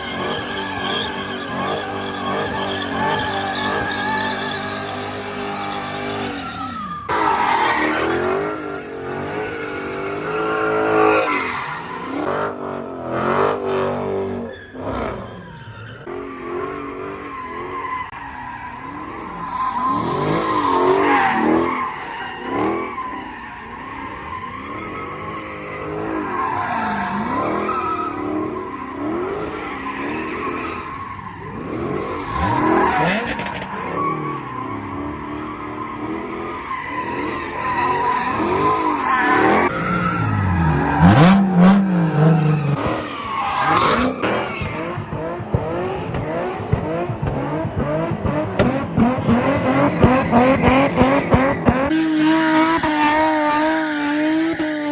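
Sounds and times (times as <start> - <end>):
car engine revving: 0.0 - 11.2, 31.5 - 36.5, 37.2 - 54.9
tyres squealing on pavement: 0.0 - 54.9.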